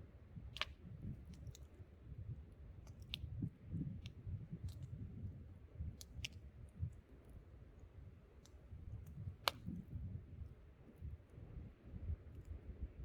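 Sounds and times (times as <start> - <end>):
low wind rumble: 0.0 - 13.0
campfire crackling and popping: 0.4 - 1.7, 8.4 - 10.1.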